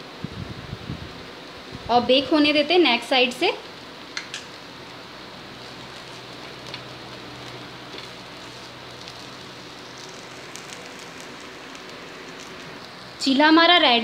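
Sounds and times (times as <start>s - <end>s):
pancake sizzling in a pan: 3.7s - 13.6s
faint crackles: 5.4s - 13.3s.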